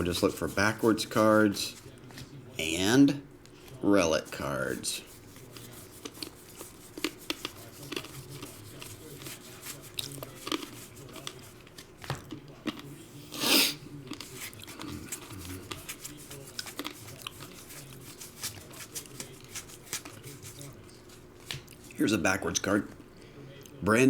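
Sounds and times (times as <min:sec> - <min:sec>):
cards clicking and rustling: 0:14.2 - 0:21.7.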